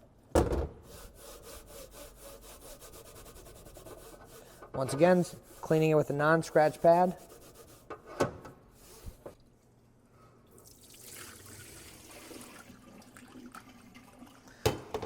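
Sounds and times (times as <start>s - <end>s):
water running from a tap: 10.6s - 14.4s.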